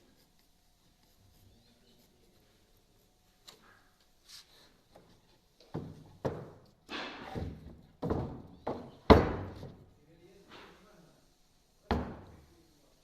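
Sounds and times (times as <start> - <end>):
wooden boards knocking: 7.4 - 9.8.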